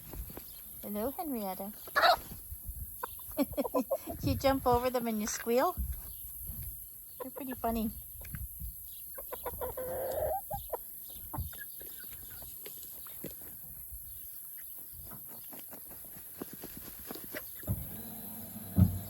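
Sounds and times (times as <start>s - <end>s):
chickens clucking: 0.9s - 6.4s, 7.1s - 15.7s.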